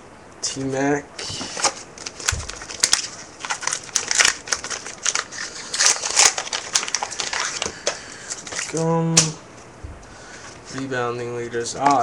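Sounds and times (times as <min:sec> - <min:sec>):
wrapper crinkling and tearing: 0:01.2 - 0:09.4
dull low thump: 0:09.8 - 0:10.2.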